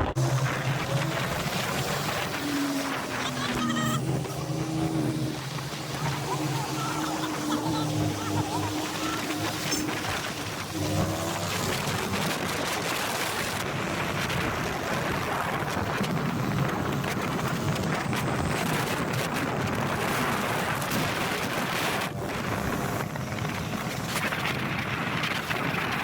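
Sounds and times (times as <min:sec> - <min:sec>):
motorcycle engine running: 0:00.0 - 0:20.6
wind rushing over microphone: 0:00.0 - 0:26.0.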